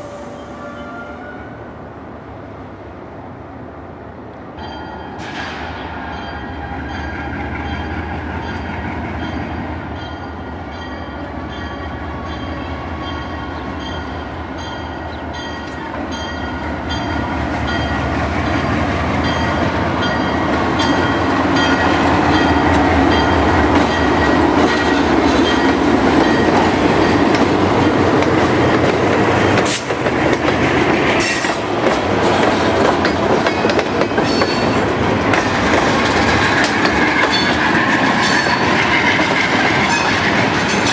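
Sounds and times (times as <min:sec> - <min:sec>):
train wheels clicking over rails: 0:16.5 - 0:40.9.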